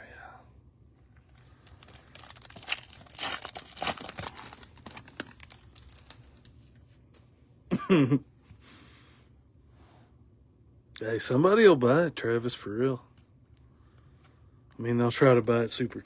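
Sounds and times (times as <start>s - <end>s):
foil wrapper tearing and crinkling: 1.4s - 6.8s.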